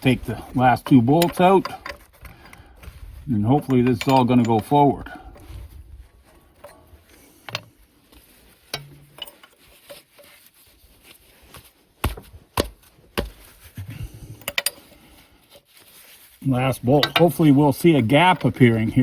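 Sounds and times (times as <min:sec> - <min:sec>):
wrench clicking and knocking on metal: 0:00.8 - 0:02.6, 0:14.4 - 0:14.8.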